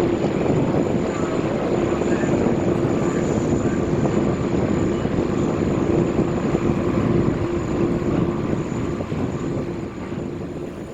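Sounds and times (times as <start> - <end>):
jet engines running: 0.0 - 10.9.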